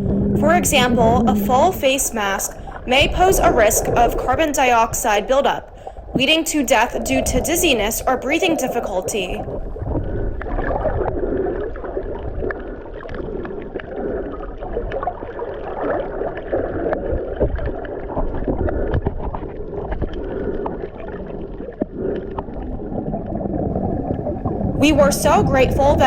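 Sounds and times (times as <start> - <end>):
small underwater clicks and crackles: 0.0 - 26.0
underwater sloshing and gurgling: 0.0 - 26.0.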